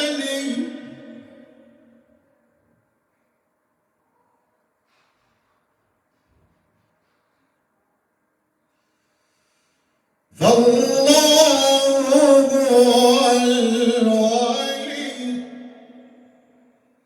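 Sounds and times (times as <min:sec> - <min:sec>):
man reciting melodically: 0:00.0 - 0:01.9, 0:10.3 - 0:16.3.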